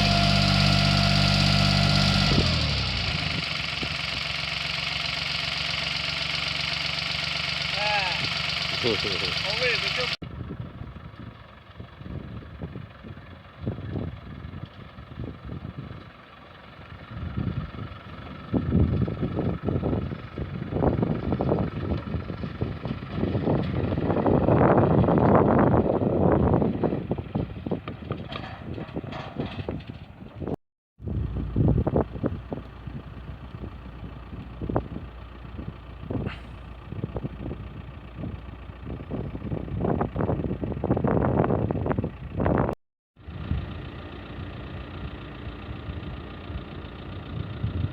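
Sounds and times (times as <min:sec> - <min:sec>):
wind buffeting microphone: 0:17.1 - 0:42.8.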